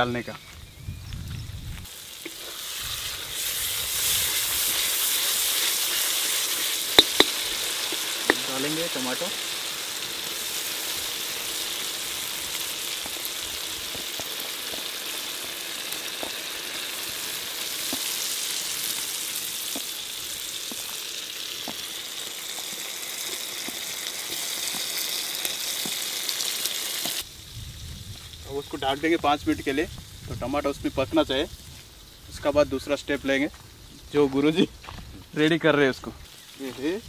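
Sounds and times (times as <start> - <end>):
masala sizzling in a wok: 1.6 - 37.0
small pops in frying: 2.1 - 3.5, 4.2 - 9.3, 10.1 - 27.3.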